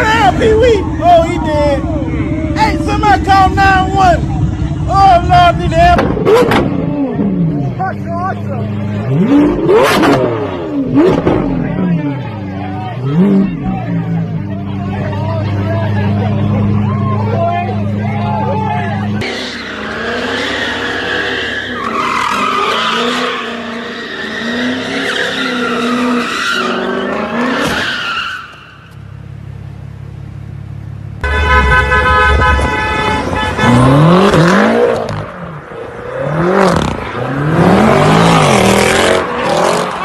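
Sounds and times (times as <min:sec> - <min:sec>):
sports car engines revving: 0:00.0 - 0:40.0
tyres squealing: 0:18.2 - 0:29.0
car horn: 0:31.2 - 0:35.2.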